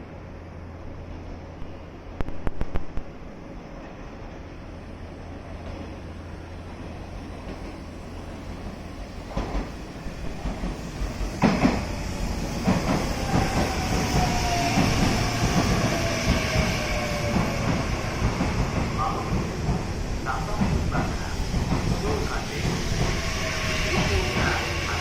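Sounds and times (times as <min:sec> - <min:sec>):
train wheels clacking: 0:09.3 - 0:23.2.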